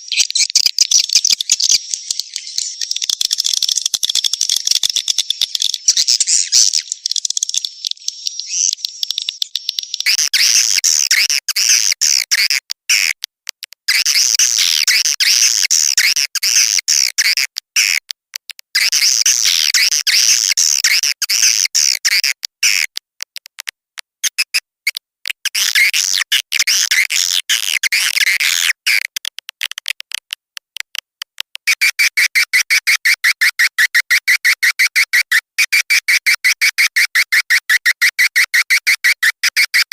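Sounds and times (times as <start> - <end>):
swiftlet twittering chirps: 0.0 - 10.2.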